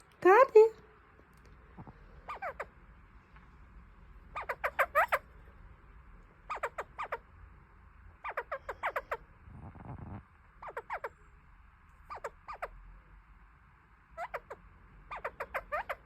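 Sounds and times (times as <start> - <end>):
parakeet chattering: 2.2 - 2.8, 4.2 - 5.3, 6.4 - 7.3, 8.2 - 9.8, 10.6 - 11.2, 12.1 - 12.8, 14.1 - 16.0.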